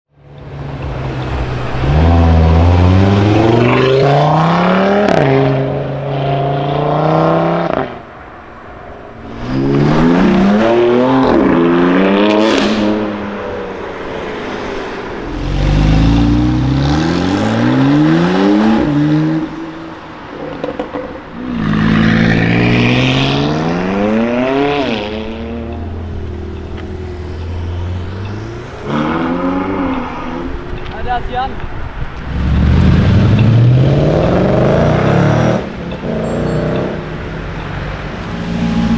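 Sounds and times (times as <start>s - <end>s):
car engines accelerating hard: 0.2s - 8.4s, 9.0s - 38.9s.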